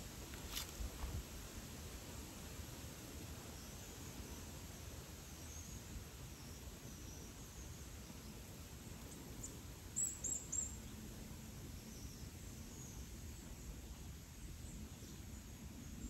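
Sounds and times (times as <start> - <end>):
faint chirping: 9.0 - 16.0.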